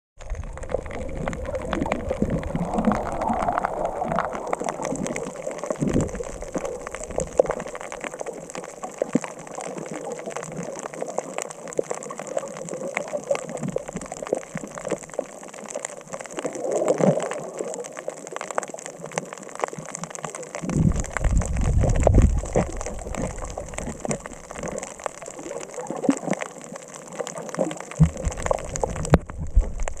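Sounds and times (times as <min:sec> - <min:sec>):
bubble bursts: 0:00.2 - 0:08.1
underwater clicking crackle: 0:00.2 - 0:30.0.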